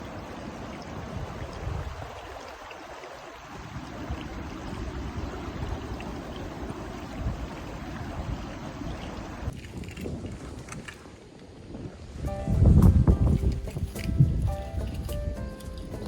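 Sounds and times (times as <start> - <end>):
flowing stream water: 0.0 - 16.0.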